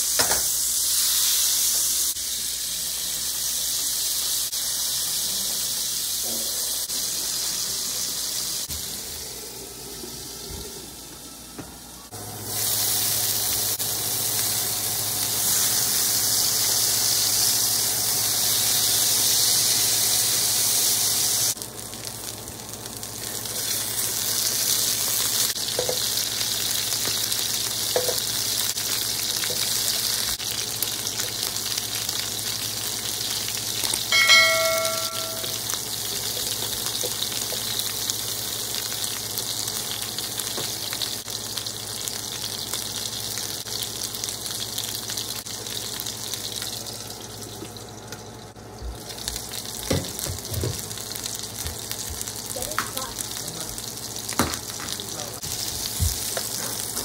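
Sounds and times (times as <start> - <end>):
chicken sizzling in oil: 0.0 - 11.1, 12.0 - 57.0
short ringing tone: 34.1 - 35.7.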